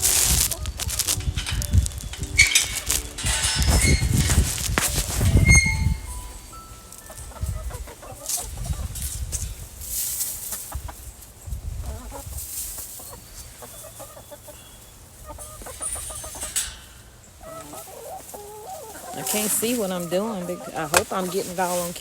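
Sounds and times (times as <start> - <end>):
scratchy noise bursts: 0.0 - 6.1
chickens clucking: 0.0 - 22.0.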